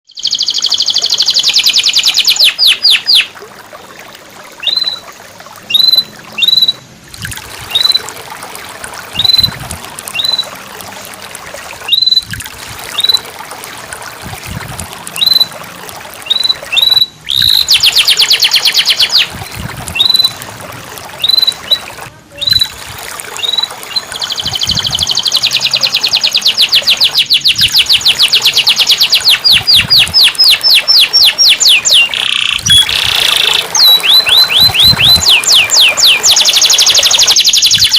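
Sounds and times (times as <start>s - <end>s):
trickling water: 0.1s - 37.9s
canary trilling: 23.4s - 37.9s.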